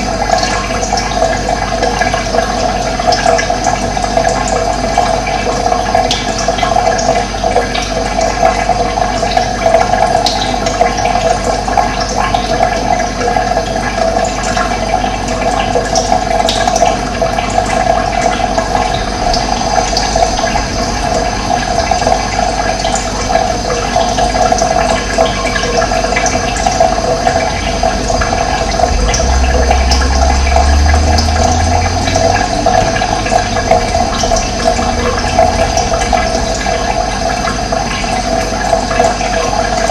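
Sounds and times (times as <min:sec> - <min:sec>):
running water rushing: 0:00.0 - 0:39.9
low rumble: 0:17.8 - 0:23.9, 0:26.2 - 0:39.0.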